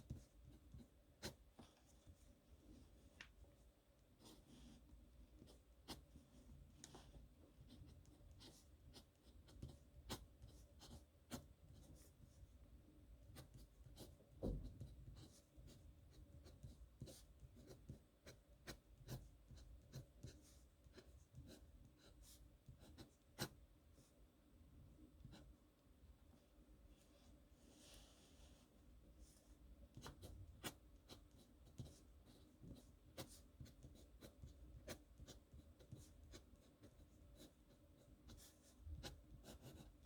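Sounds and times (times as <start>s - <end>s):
pen scratching on paper: 5.4s - 12.2s, 13.3s - 23.6s, 29.9s - 40.0s.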